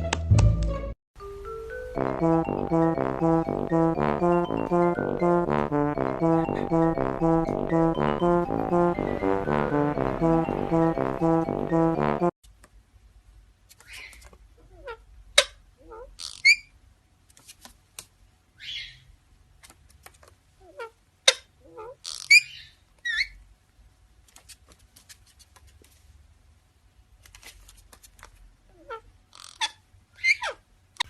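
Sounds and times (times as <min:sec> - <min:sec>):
parrot squeaks and chirps: 0:16.2 - 0:16.7, 0:18.6 - 0:19.0, 0:21.3 - 0:23.4, 0:28.8 - 0:30.6.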